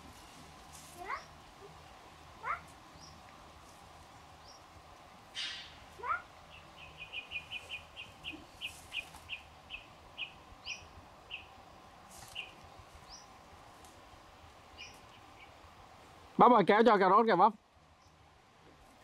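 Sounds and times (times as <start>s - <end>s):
bird chirping: 6.5s - 11.6s, 12.2s - 13.4s, 14.7s - 15.6s.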